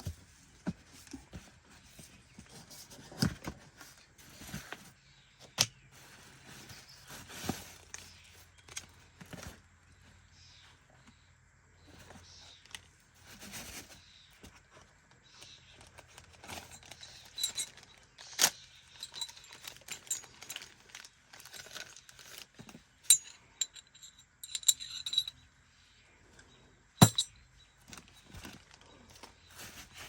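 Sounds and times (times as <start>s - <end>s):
metallic clinks of tools: 23.1s - 25.4s, 27.0s - 27.3s.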